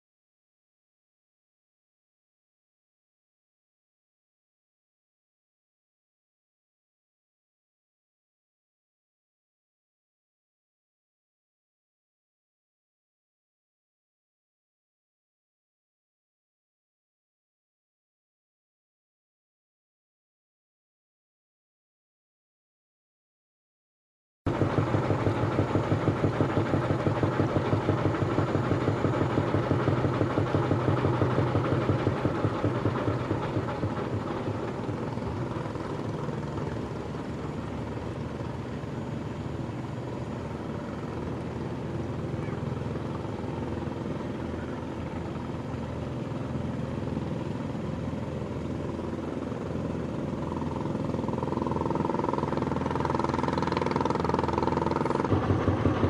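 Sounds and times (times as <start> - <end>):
large engine running: 24.5 - 56.0.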